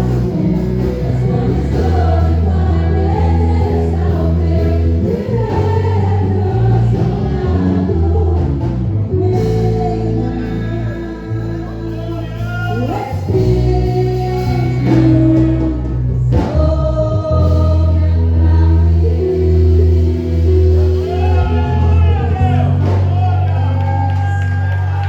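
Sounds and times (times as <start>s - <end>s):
voices singing praise song: 0.0s - 15.9s
instrumental accompaniment with bass: 0.0s - 25.0s.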